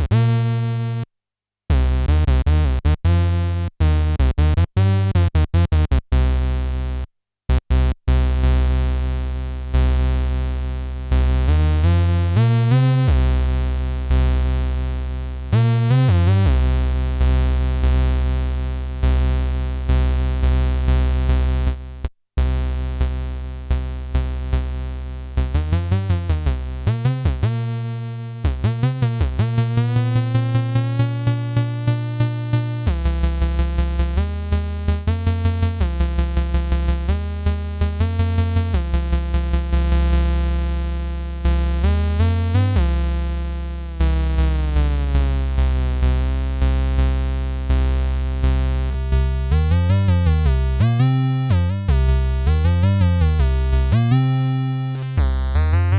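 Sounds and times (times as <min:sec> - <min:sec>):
buzzy synthesizer notes: 0:48.5 - 0:55.9.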